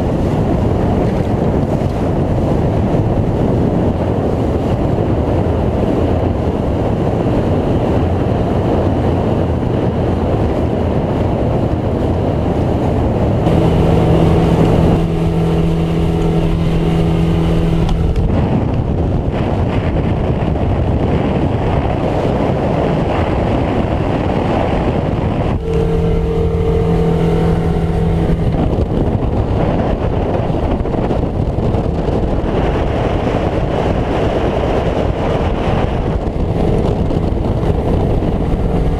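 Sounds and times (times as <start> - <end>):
boat engine: 0.0 - 38.9
wind and water rushing: 0.0 - 38.9
steady hum: 13.3 - 19.4, 24.6 - 30.8, 35.4 - 38.9.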